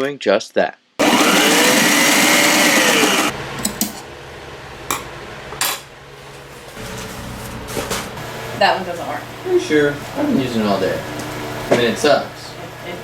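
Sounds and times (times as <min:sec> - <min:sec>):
small electric motor running: 0:01.0 - 0:03.3.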